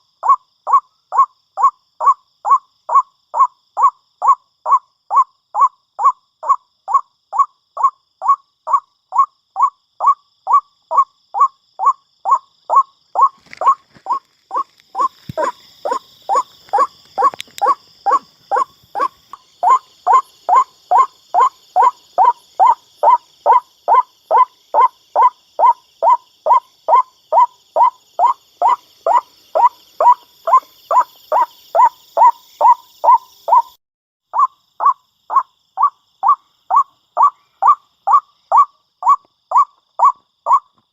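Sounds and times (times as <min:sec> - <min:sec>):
waterhen calling: 0:12.3 - 0:33.7.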